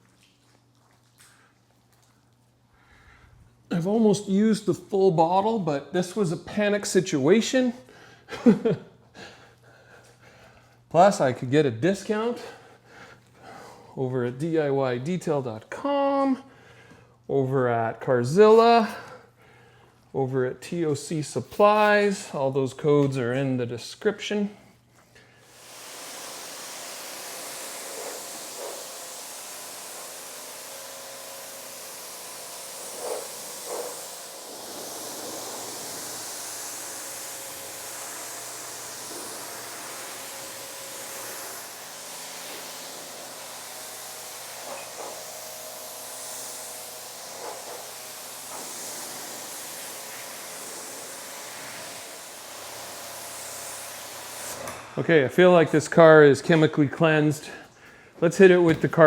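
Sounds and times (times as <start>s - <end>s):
pressure washer spraying hiss: 25.4s - 54.8s.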